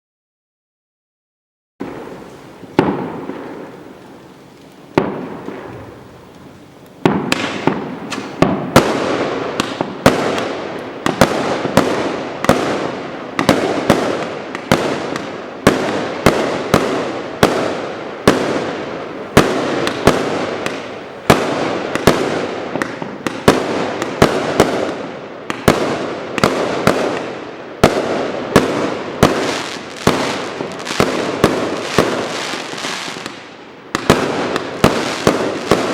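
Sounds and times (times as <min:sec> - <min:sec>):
fireworks cake shots: 0:01.8 - 0:35.9.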